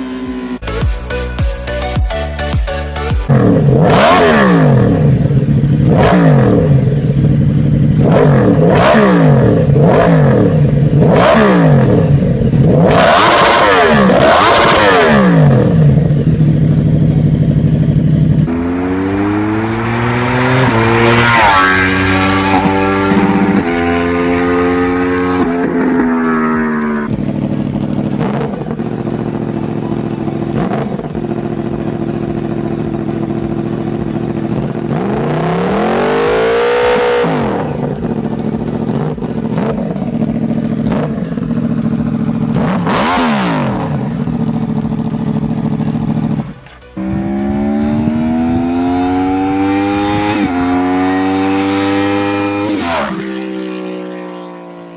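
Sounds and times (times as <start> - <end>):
motorcycle engine revving: 0.0 - 0.8, 3.0 - 54.9.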